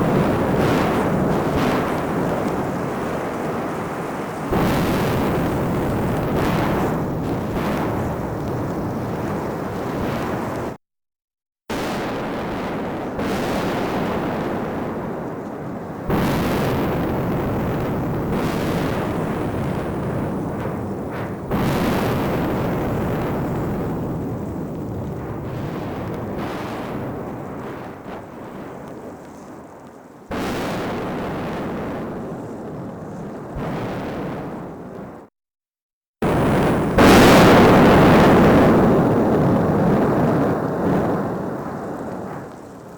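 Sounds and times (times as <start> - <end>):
volcanic explosive blasts: 0.0 - 10.8, 11.7 - 35.3, 36.2 - 42.9
volcano deep roar: 13.4 - 35.0, 36.3 - 42.9.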